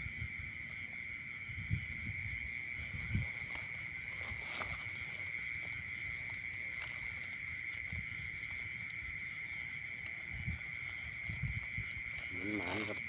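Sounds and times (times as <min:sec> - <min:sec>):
insects chirring: 0:00.0 - 0:13.0
footsteps through field rustling: 0:02.4 - 0:09.9.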